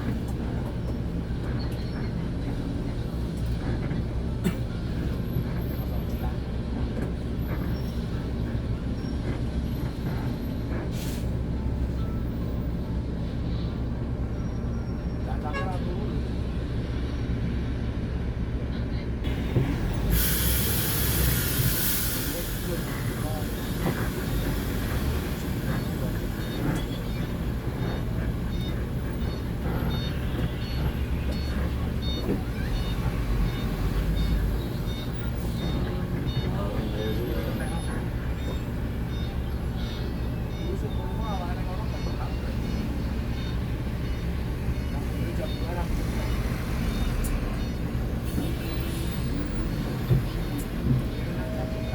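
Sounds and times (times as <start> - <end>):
bus diesel engine rumbling: 0.0 - 51.9
electronic warning beeps: 23.2 - 51.9.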